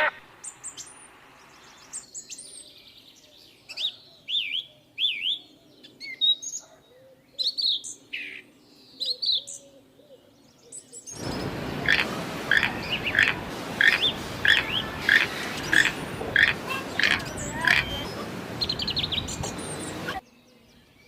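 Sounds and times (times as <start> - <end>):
small birds chirping: 0.0 - 21.0
steady hiss: 11.2 - 20.2.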